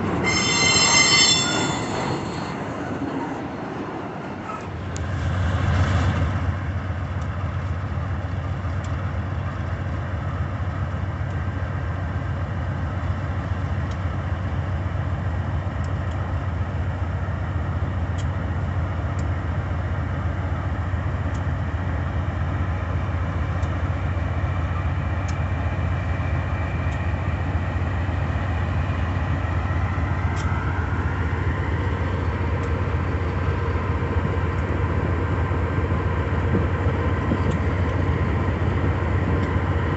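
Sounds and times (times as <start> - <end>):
diesel locomotive engine drone: 0.0 - 39.9
faint metallic ticks: 18.1 - 19.4, 25.2 - 25.5.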